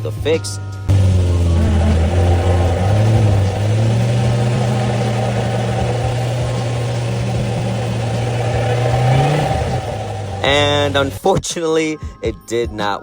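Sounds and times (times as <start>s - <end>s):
car driving with low drone: 0.9s - 11.2s.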